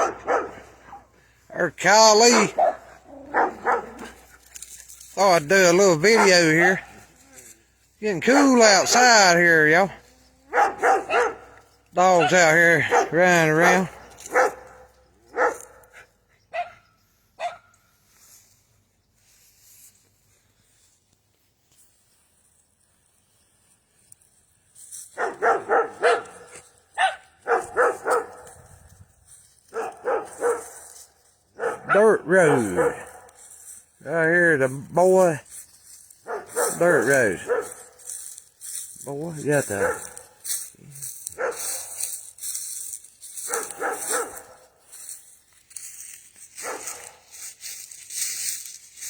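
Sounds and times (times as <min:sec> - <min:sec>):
dog barking: 0:00.0 - 0:01.1, 0:02.2 - 0:04.3, 0:06.0 - 0:07.0, 0:08.2 - 0:09.0, 0:10.4 - 0:16.8, 0:17.4 - 0:17.8, 0:25.2 - 0:28.6, 0:29.7 - 0:33.4, 0:36.2 - 0:37.9, 0:39.6 - 0:40.4, 0:41.2 - 0:42.1, 0:43.4 - 0:44.8, 0:46.6 - 0:47.3.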